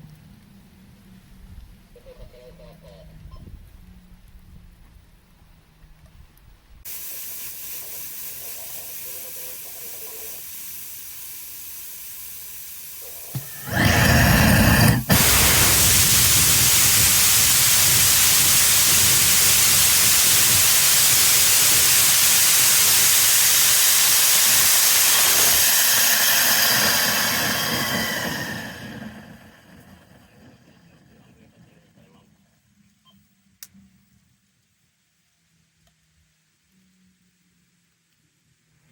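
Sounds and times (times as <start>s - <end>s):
steady hiss: 6.8s - 32.1s
rocket engine roar: 13.3s - 31.6s.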